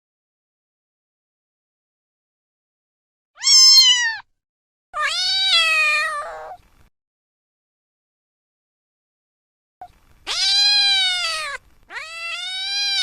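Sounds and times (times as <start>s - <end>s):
cat meowing: 3.4s - 4.3s, 5.0s - 6.6s, 10.2s - 13.0s.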